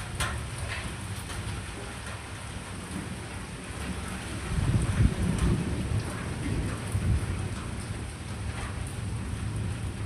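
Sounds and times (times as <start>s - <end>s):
steady rain falling: 0.0s - 10.0s
rolling thunder: 2.8s - 10.0s.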